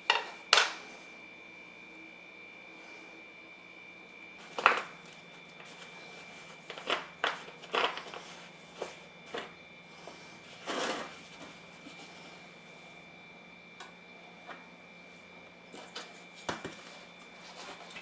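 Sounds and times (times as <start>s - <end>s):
small parts knocking and clinking: 4.4s - 4.9s, 6.7s - 8.3s.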